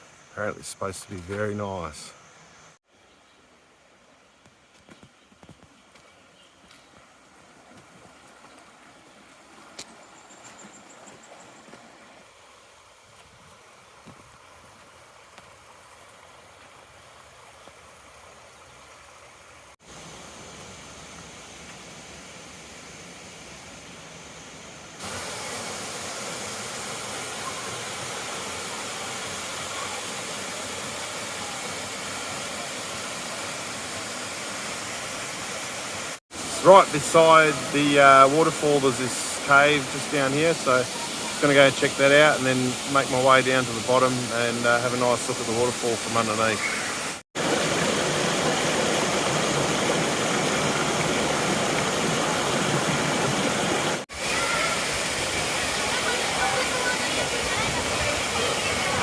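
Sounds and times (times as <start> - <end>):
waterfall rushing: 25.0 - 59.0.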